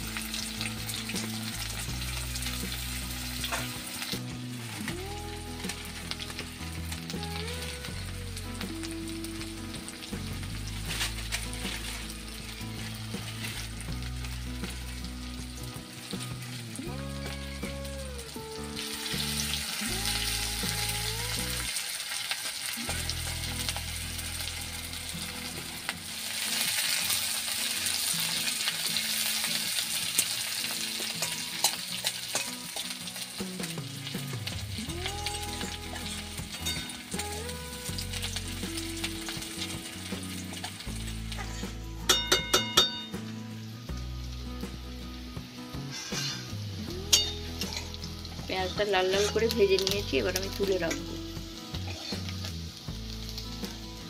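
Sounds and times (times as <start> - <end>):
onions sizzling in oil: 0.0 - 54.0
steel spatula stirring in wok: 31.0 - 32.9.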